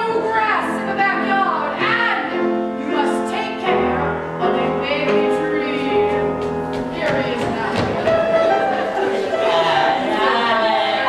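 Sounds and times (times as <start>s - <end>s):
piano accompaniment: 0.0s - 11.0s
person singing: 8.6s - 11.0s.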